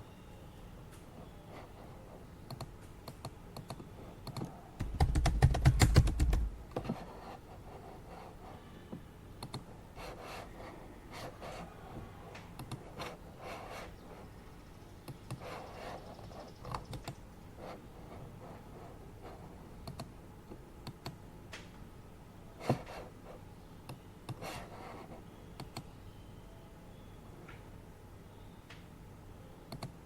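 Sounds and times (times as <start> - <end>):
keyboard keys clicking: 2.4 - 6.5, 19.8 - 20.1, 29.7 - 30.0.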